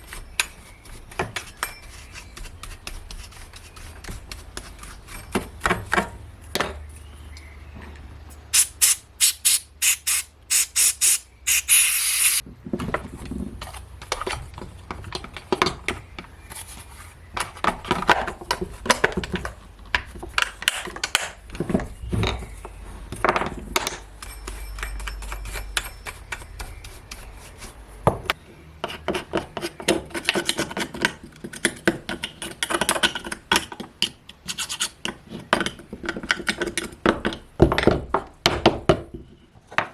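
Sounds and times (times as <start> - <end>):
quick scraping strokes: 8.3 - 12.4
short hiss: 8.3 - 12.4.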